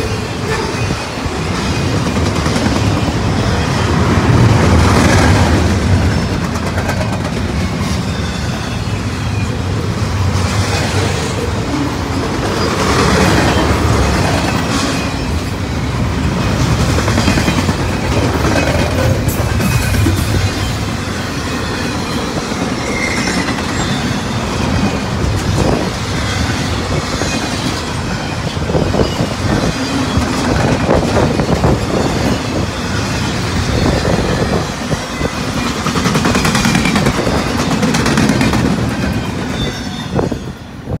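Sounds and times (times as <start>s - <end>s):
wheels clacking over rail joints: 0.0s - 40.4s
steel wheels rumbling on rail: 0.0s - 41.0s.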